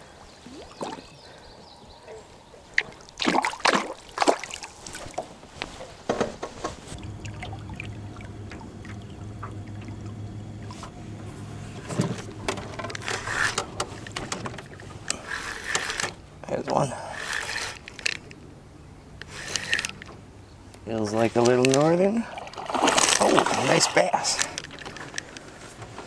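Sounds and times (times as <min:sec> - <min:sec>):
water splashing and dribbling: 0:00.4 - 0:01.3, 0:02.7 - 0:05.4, 0:06.9 - 0:10.9, 0:21.4 - 0:25.0
small boat motor humming: 0:06.9 - 0:21.0.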